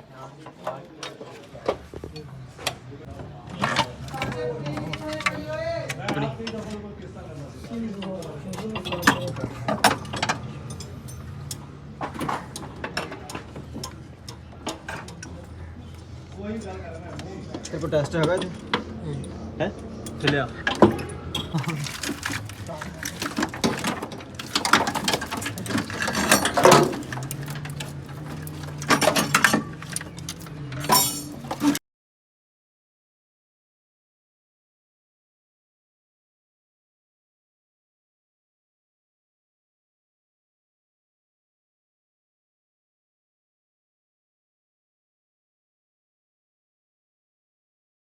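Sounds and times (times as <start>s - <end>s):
metal tools clinking: 8.0s - 16.0s, 17.5s - 31.8s.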